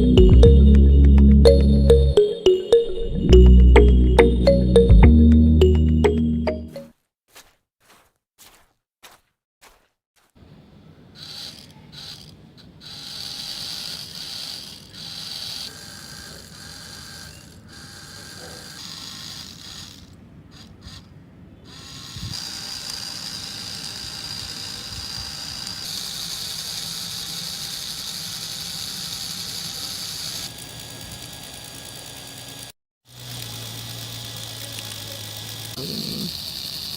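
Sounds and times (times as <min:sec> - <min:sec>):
small electric motor whirring: 0:11.2 - 0:36.9.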